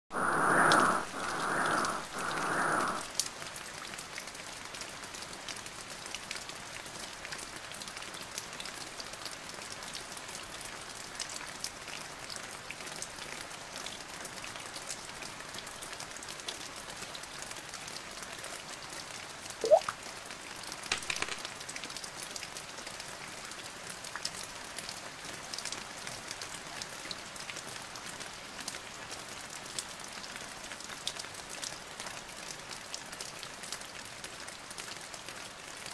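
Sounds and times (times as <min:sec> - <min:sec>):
steady rain falling: 0:00.1 - 0:35.9
short rising chirp: 0:19.6 - 0:19.9.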